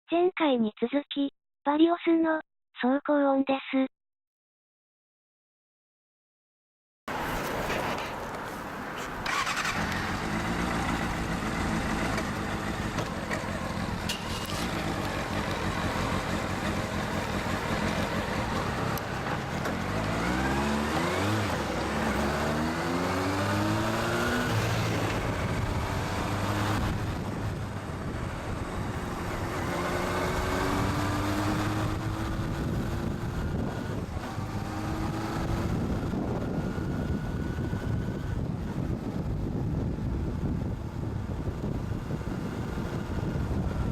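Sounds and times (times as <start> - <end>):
motorcycle engine revving: 9.2 - 38.4.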